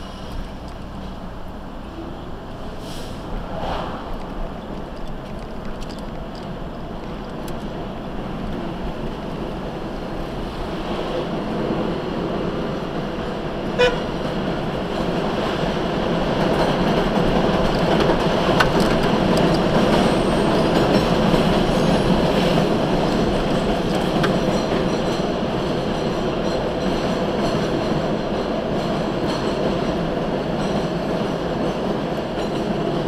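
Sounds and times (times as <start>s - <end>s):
vehicle road noise: 0.0s - 31.3s
train rumbling overhead: 0.0s - 33.0s
short horn beep: 13.8s - 14.1s.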